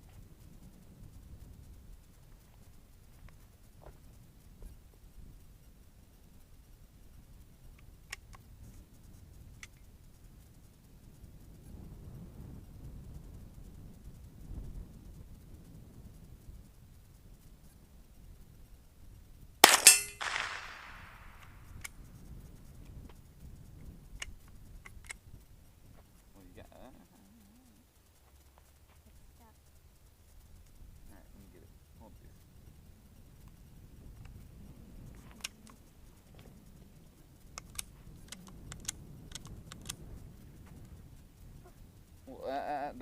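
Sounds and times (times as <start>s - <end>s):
faint small clicks: 7.6s - 8.9s, 9.5s - 9.9s, 20.2s - 26.3s, 35.0s - 41.8s
rifle bolt clicking and rattling: 19.6s - 21.5s, 37.6s - 40.0s
rifle shot with echo: 19.6s - 21.5s.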